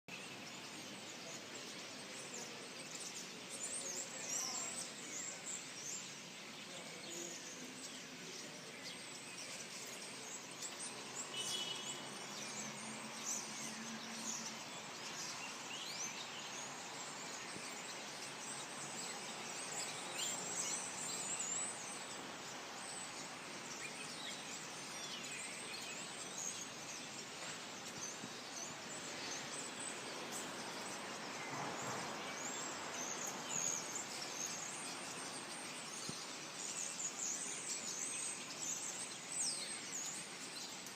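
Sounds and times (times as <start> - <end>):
birds chirping: 0.1 - 40.9
steady background hiss: 0.1 - 40.9.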